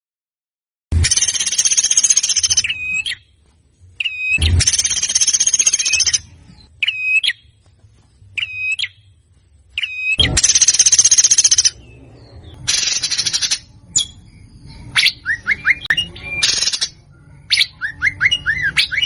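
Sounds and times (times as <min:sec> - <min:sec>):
songbird rattling trill: 0:01.0 - 0:03.2, 0:04.0 - 0:07.4, 0:09.8 - 0:19.0
bird whistled notes: 0:01.0 - 0:03.3, 0:04.0 - 0:07.5, 0:08.4 - 0:09.1, 0:09.8 - 0:19.0.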